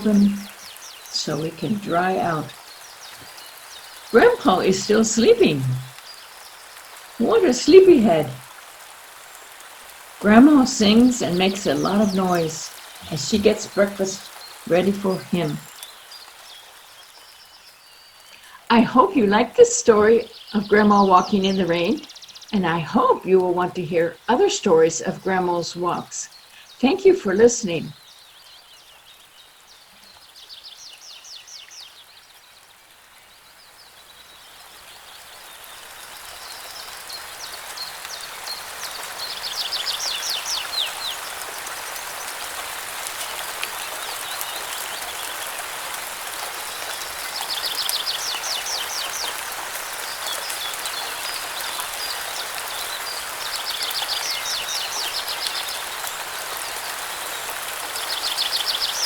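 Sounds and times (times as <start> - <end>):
songbird trilling: 0.0 - 6.2, 10.3 - 16.0
steady rain: 0.0 - 59.0.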